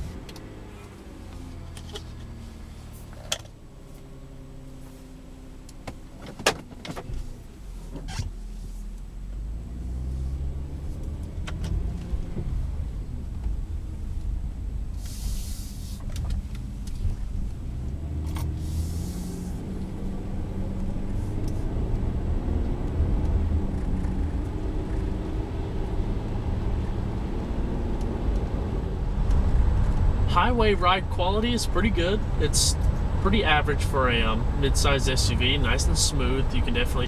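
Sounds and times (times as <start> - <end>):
car engine accelerating: 0.0 - 37.0
short hissing sounds: 15.0 - 16.1, 18.5 - 19.6.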